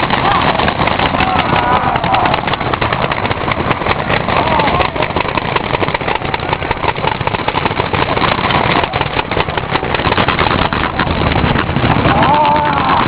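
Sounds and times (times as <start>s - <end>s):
paintball markers firing: 0.0s - 13.0s
person shouting: 12.0s - 13.0s.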